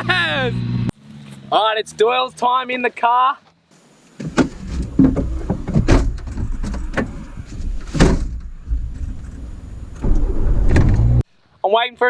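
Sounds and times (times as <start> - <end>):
car engine rumble: 0.0 - 2.1, 4.2 - 11.2.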